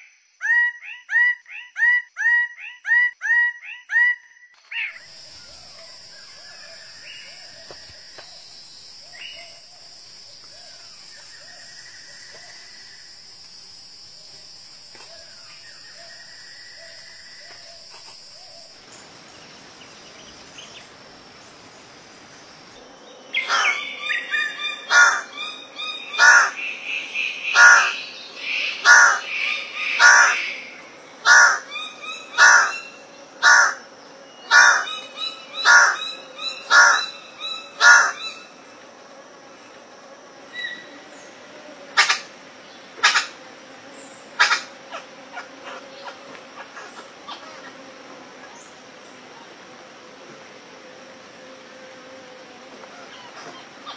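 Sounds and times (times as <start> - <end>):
high insect hum: 0.0 - 53.9
forest bird calling loudly: 23.3 - 33.8, 34.4 - 38.5.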